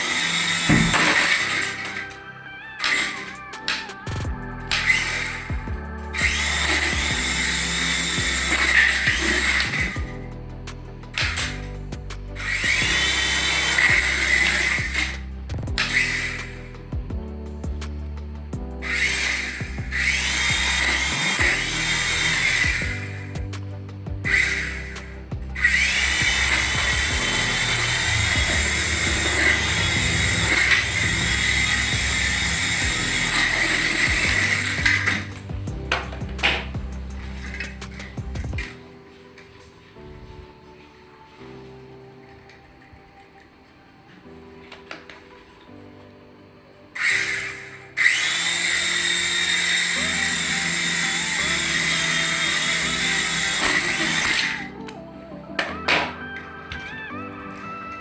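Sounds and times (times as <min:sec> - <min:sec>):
toy helicopter motor whining: 0:00.0 - 0:02.0, 0:06.2 - 0:10.0, 0:12.5 - 0:15.2, 0:18.8 - 0:23.1, 0:24.3 - 0:25.0, 0:25.6 - 0:35.5, 0:47.0 - 0:54.7.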